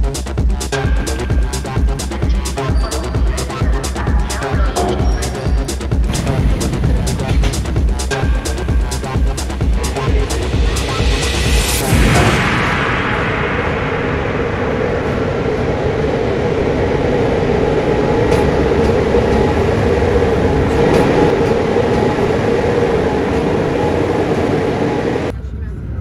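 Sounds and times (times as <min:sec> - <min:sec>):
train rumbling on track: 0:00.0 - 0:26.0
rail clicks: 0:02.4 - 0:12.4, 0:14.6 - 0:25.3.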